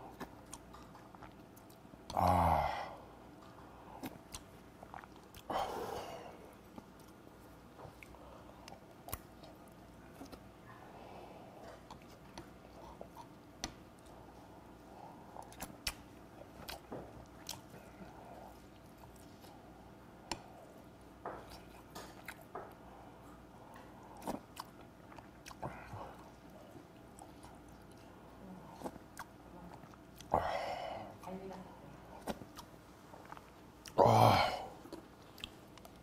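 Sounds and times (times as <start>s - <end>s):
low room hum: 0.0s - 36.0s
close chewing: 0.1s - 1.9s, 3.4s - 5.5s, 11.6s - 14.5s, 15.4s - 19.7s, 23.7s - 30.4s, 34.8s - 36.0s.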